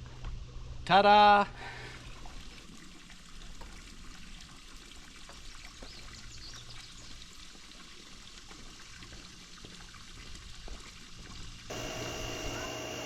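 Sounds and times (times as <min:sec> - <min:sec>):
water trickling and pouring: 0:01.9 - 0:11.7.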